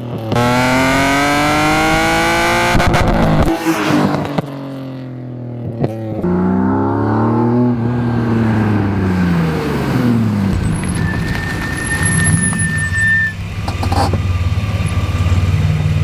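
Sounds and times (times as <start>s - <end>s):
car engine revving: 0.0s - 4.9s, 5.8s - 16.0s
high-pitched squeal: 7.6s - 14.2s.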